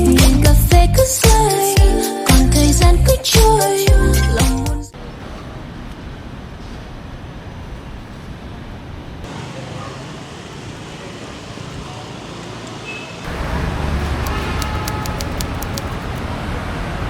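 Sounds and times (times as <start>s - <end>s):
road traffic hum: 4.9s - 17.0s.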